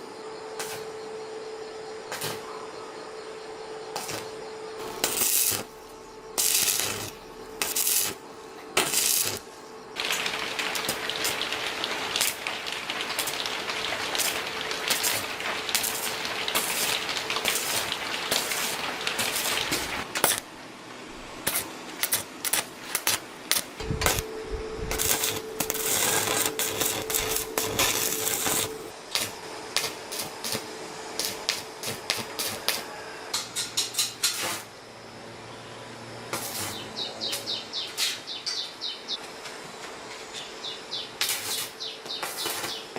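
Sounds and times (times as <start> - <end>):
faint steady hum: 0.0 - 33.4
hissing crackle: 3.9 - 32.9, 33.9 - 34.7, 36.3 - 38.2, 41.2 - 42.9.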